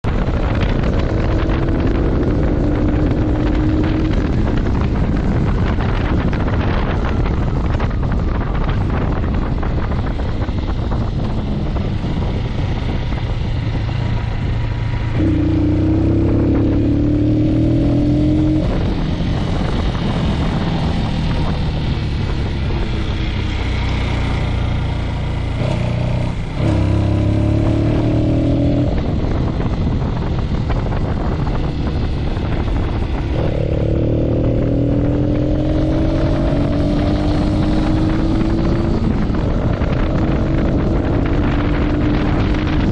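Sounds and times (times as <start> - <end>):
motorcycle engine accelerating: 0.0 - 42.9
wind on microphone: 0.0 - 42.9.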